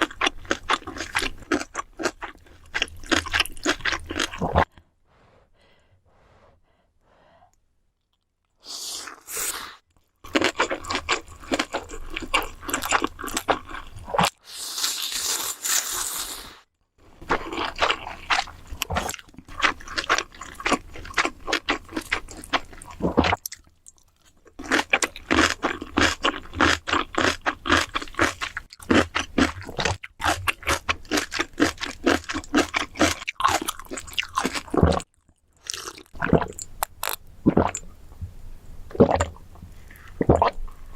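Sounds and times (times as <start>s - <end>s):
wet chewing and crunching: 0.0s - 4.7s, 9.9s - 16.2s, 17.2s - 37.9s.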